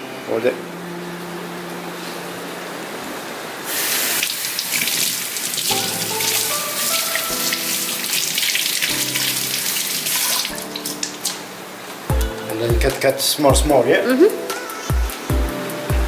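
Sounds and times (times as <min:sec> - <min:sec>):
kitchen tap running: 0:03.7 - 0:11.4
water splashing over leaf: 0:03.7 - 0:11.5.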